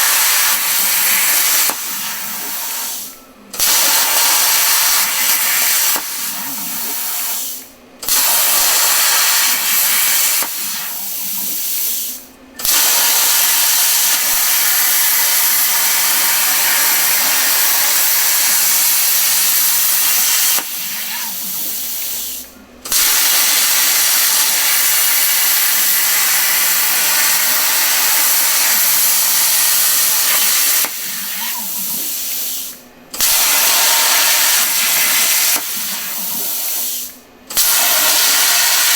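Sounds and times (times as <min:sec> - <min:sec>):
plasma cutter hissing: 0:00.0 - 0:38.9.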